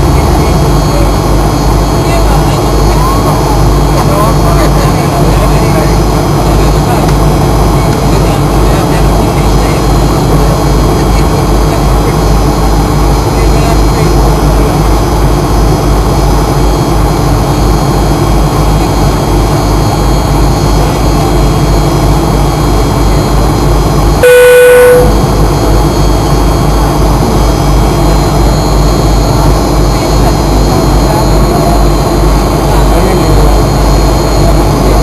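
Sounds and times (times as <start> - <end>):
jet engines roaring in cabin: 0.0 - 35.0
brief tone: 24.2 - 26.0.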